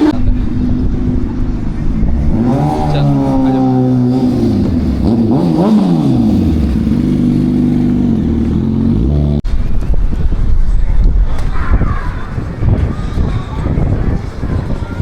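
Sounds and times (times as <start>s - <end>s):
vehicle engine revving: 0.0s - 9.5s.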